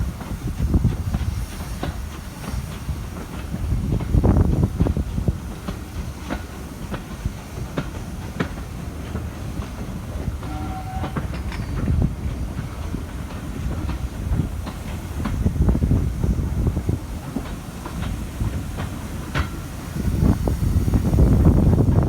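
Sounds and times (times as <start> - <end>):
train rumbling: 0.0 - 22.0
wheels clacking over rail joints: 0.2 - 22.0
brief steady tone: 10.4 - 11.8.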